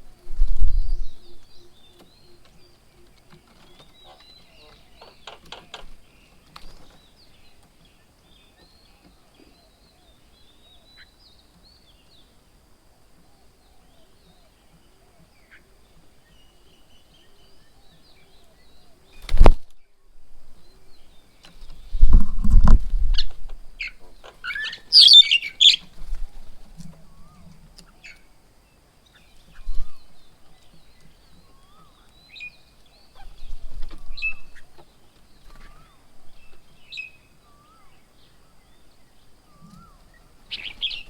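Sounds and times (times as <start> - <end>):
birds chirping faintly: 0.0 - 41.0
birds squawking: 1.1 - 5.9, 23.2 - 26.0.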